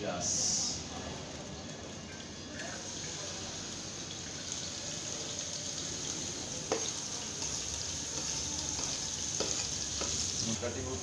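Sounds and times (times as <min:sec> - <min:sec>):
onion sizzling in oil: 0:00.0 - 0:11.0.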